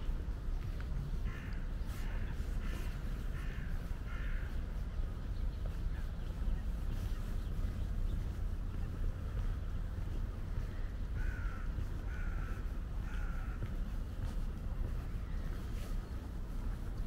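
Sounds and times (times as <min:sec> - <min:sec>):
steady low rumble: 0:00.0 - 0:17.0
bird raspy calls: 0:01.2 - 0:14.2.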